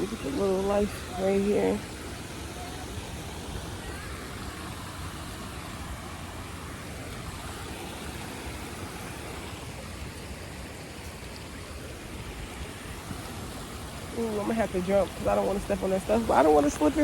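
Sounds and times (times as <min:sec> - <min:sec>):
creek rushing: 0:00.0 - 0:17.0
wind rumbling on microphone: 0:00.0 - 0:17.0.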